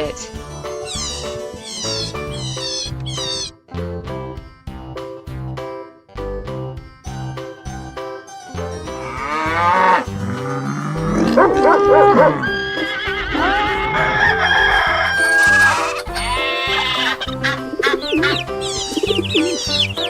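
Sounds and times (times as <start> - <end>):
farm animal calls: 0.8 - 3.5, 9.1 - 20.0.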